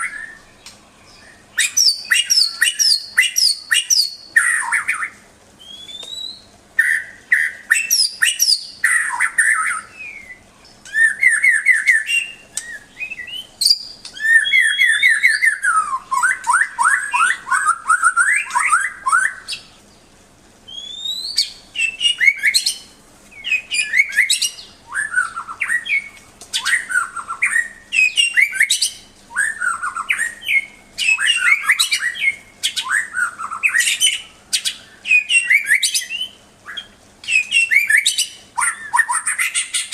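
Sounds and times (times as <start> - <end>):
bird singing whistles and trills: 0.0 - 20.1, 20.7 - 39.9.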